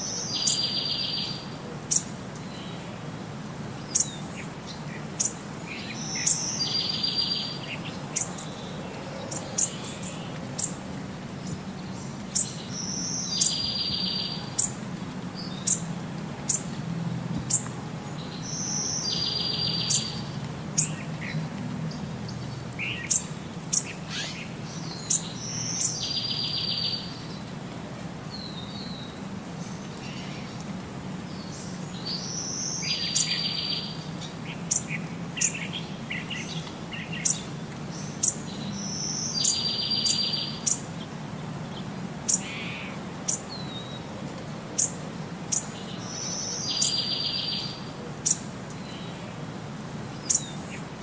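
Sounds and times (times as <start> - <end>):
bird chirping: 0.0 - 2.8, 3.9 - 14.8, 15.4 - 15.9, 17.4 - 27.4, 31.3 - 40.9, 44.8 - 49.3, 50.2 - 50.9.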